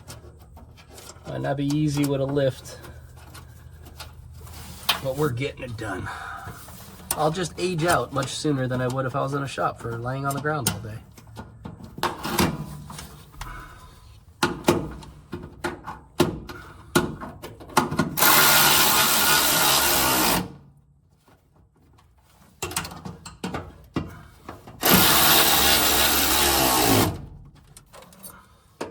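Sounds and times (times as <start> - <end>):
screws and tools clicking: 18.2 - 20.4, 24.8 - 27.2
power drill driving screws: 18.2 - 20.5, 24.8 - 27.2.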